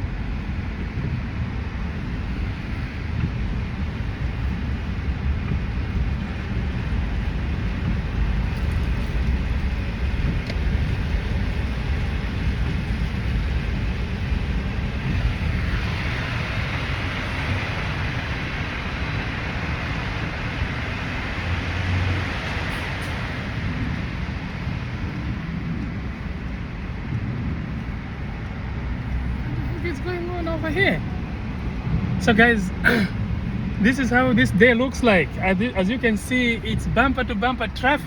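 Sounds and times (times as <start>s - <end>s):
car engine rumble: 0.0s - 38.0s
tyre hiss on wet road: 1.8s - 27.1s.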